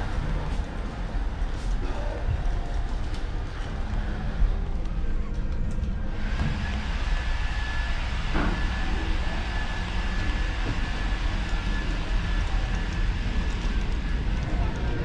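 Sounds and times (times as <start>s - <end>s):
faint high whine: 6.0s - 14.7s
moving vehicle rumble and hiss: 6.1s - 15.0s.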